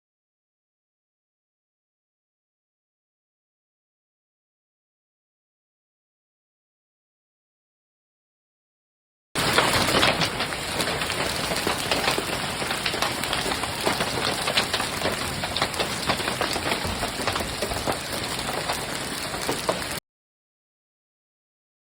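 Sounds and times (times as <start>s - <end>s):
hailstones ticking on hard surfaces: 9.4s - 20.0s
rain hissing: 9.4s - 20.0s.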